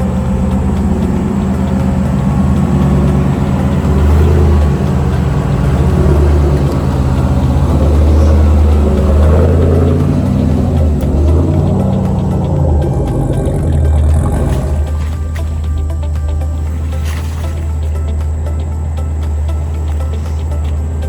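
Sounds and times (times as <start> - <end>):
car engine droning: 0.0 - 21.0.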